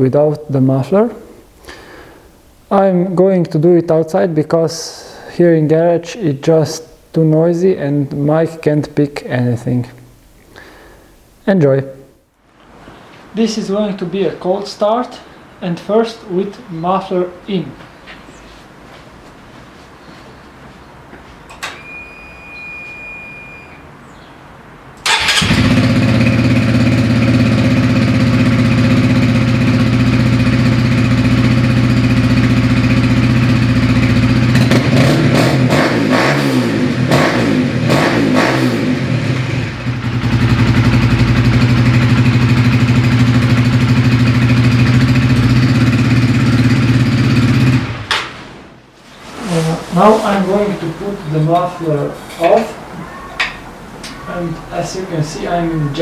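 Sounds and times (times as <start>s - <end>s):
motorcycle engine idling and revving: 25.1s - 48.1s.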